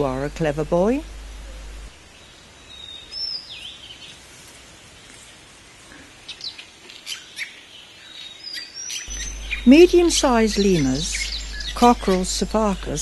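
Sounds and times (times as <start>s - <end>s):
forest ambience hiss: 0.0s - 13.0s
bird calls: 6.0s - 13.0s.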